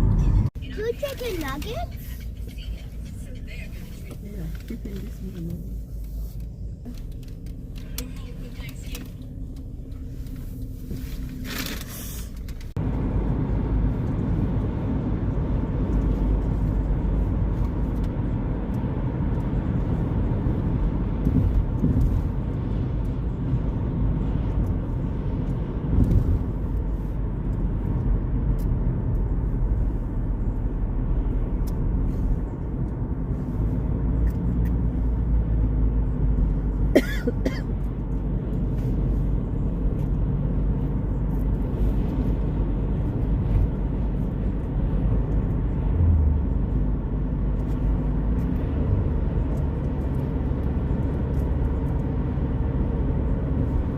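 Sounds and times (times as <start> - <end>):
car cabin road and engine rumble: 0.0 - 53.9.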